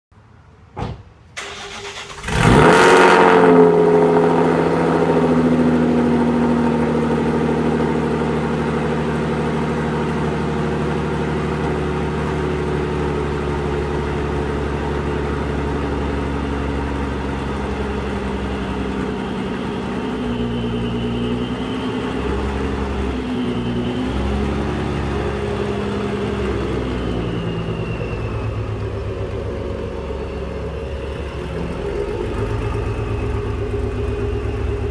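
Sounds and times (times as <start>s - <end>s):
car engine cranking and starting: 1.3s - 34.9s
loud car engine idle: 1.4s - 34.9s.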